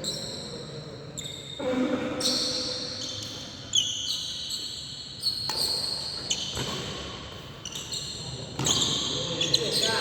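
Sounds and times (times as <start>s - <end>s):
shoes squeaking on court: 2.2s - 10.0s.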